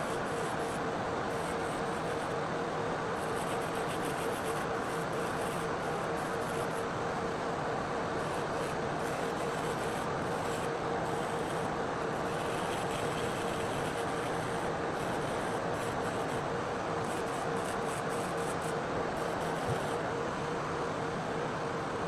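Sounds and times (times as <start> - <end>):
nail vacuum fan running: 0.0 - 21.4.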